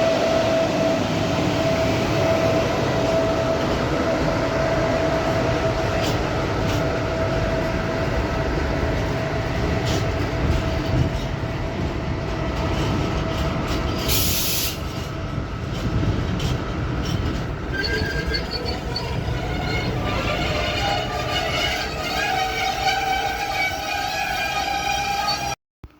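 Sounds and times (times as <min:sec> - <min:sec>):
freight train rumbling: 0:00.0 - 0:25.9
squealing wheels and brakes: 0:01.6 - 0:11.5, 0:12.6 - 0:25.6
short hiss: 0:14.1 - 0:14.8.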